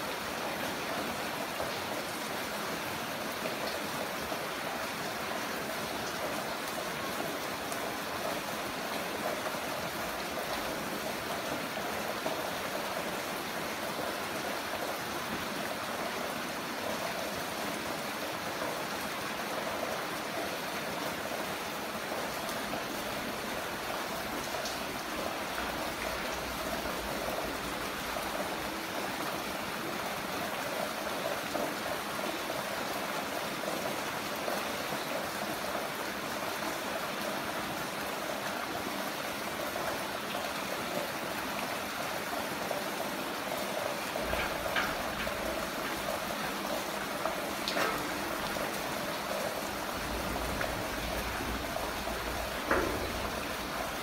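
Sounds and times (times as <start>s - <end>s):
heavy rain: 0.0s - 54.0s
running water: 0.0s - 54.0s
drip-like taps: 52.6s - 53.3s.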